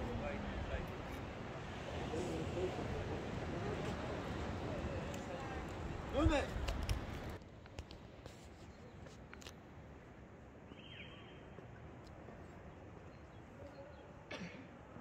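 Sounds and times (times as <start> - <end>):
faint outdoor ambience: 0.0 - 15.0.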